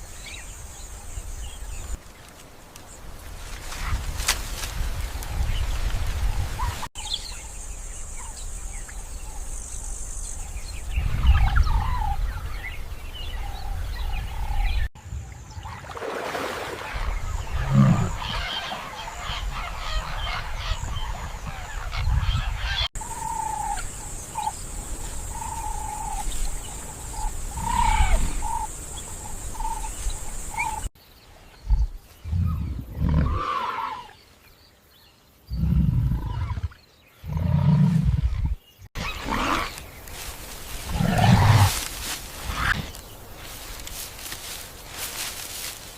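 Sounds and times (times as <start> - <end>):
bird calls: 16.8 - 45.9.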